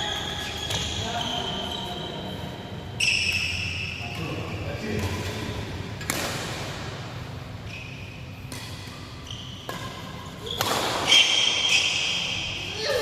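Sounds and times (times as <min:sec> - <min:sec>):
shoes squeaking on court: 0:00.0 - 0:05.4, 0:07.6 - 0:12.4
racket hitting shuttlecock: 0:05.0 - 0:07.1, 0:08.4 - 0:12.3.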